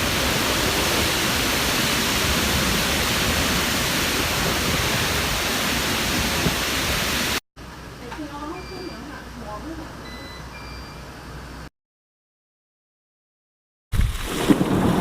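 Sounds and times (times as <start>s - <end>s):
heavy rain pouring: 0.0s - 7.4s, 14.0s - 15.0s.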